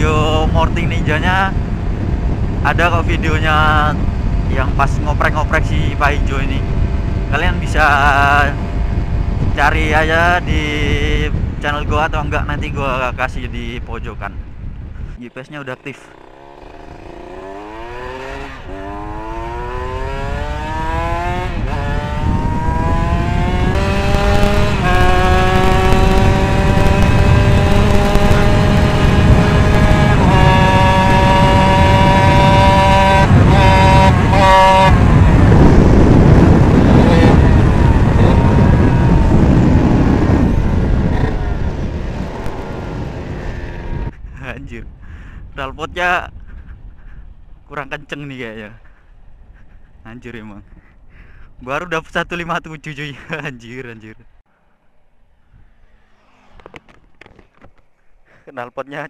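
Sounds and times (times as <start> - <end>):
motorcycle engine at full throttle: 0.0 - 13.6, 14.3 - 44.4
wind rush: 0.0 - 15.2, 16.1 - 53.6, 54.3 - 58.2.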